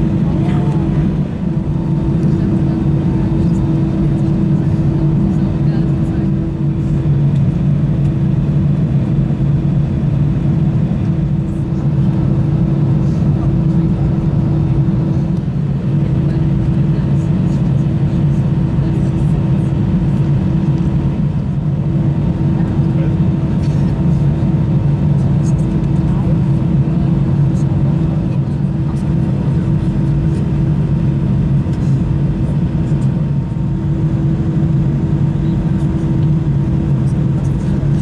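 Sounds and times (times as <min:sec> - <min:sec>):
jet engines low hum: 0:00.0 - 0:38.0.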